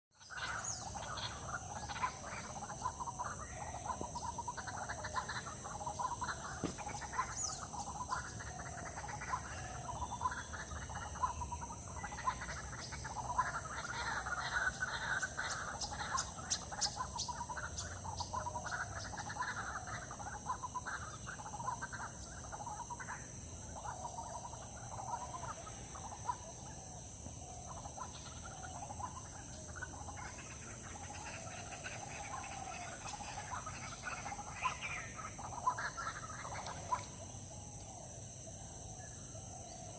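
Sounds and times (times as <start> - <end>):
bird calls: 0.1 - 39.9
frogs calling: 0.1 - 39.9
steady high-pitched drone: 0.1 - 39.9.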